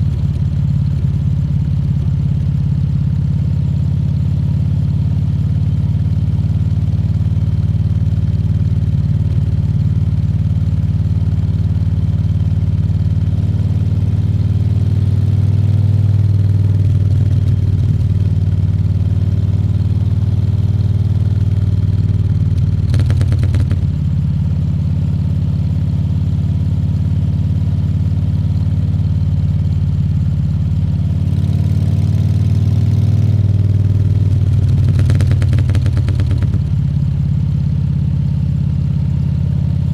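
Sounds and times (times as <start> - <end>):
motorcycle engine running at low revs: 0.0 - 39.9
short rattling burst: 22.9 - 23.9, 34.6 - 36.8.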